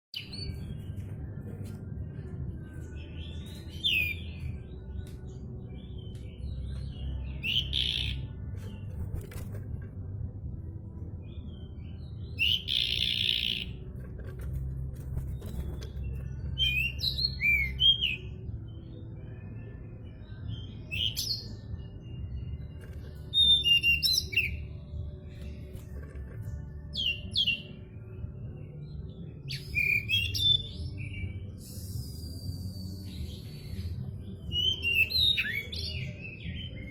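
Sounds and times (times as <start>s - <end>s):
steady low rumble: 0.4s - 7.4s, 8.2s - 20.1s
bird chirping: 2.7s - 9.4s, 11.2s - 27.8s.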